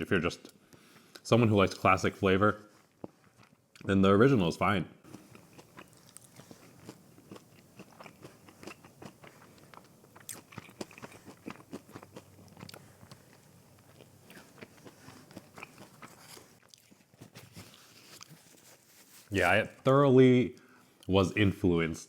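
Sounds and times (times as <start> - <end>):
chewing crunchy fried food: 2.8 - 3.9, 5.1 - 19.3.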